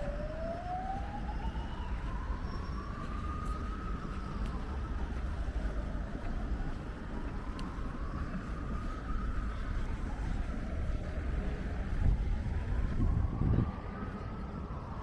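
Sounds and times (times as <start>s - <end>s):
city street noise: 0.0s - 15.0s
faint emergency siren wailing: 0.0s - 15.0s
wind rumbling on microphone: 0.0s - 15.0s.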